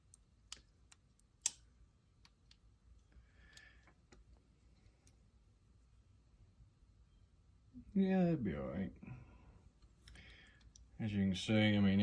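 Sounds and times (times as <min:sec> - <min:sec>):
small parts clicking and tapping: 0:00.0 - 0:05.2.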